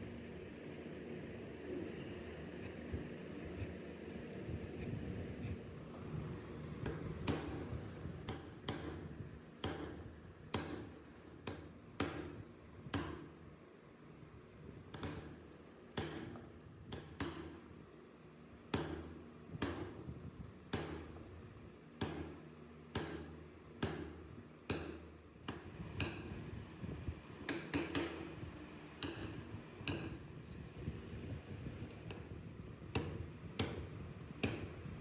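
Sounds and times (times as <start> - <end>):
mallet striking chisel: 8.2 - 12.3, 14.9 - 15.4, 16.0 - 17.6, 18.8 - 20.0, 20.8 - 21.2, 22.0 - 22.4, 23.0 - 26.4, 27.5 - 28.3, 29.0 - 30.2, 33.0 - 34.8.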